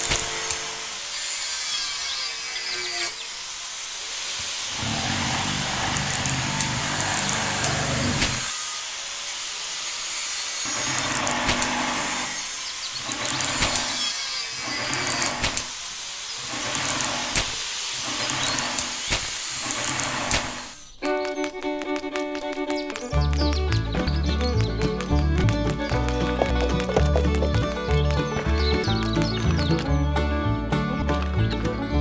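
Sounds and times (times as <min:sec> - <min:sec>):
sharp clicks: 0:00.0 - 0:00.8, 0:04.8 - 0:08.5, 0:10.7 - 0:12.2, 0:13.0 - 0:15.8, 0:16.4 - 0:29.9
small electric motor whirring: 0:00.0 - 0:29.8
gritty scraping hiss: 0:00.0 - 0:29.9.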